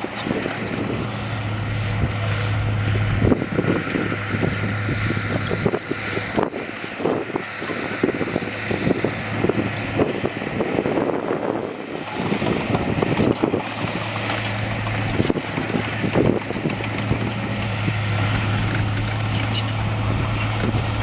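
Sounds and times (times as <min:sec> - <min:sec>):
diesel engine of heavy machinery: 0:00.0 - 0:21.0
knocks and rumbles: 0:12.4 - 0:21.0.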